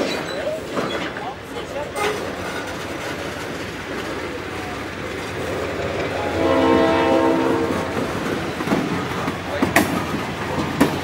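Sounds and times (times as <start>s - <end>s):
freight train wheels rumbling: 0.0s - 11.0s
train horn: 6.1s - 8.4s.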